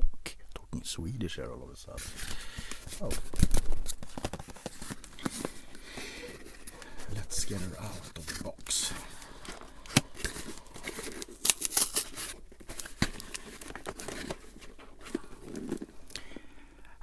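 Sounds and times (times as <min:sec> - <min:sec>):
cardboard box rustling and scraping: 0:02.0 - 0:16.0
packaging clicks and snaps: 0:08.3 - 0:16.3.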